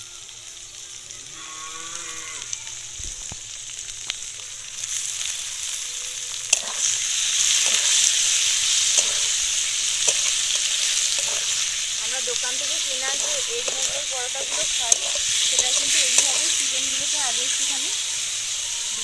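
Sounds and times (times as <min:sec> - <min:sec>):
meat sizzling in hot oil: 0:00.0 - 0:19.0
metal spatula scraping pan: 0:06.5 - 0:18.0.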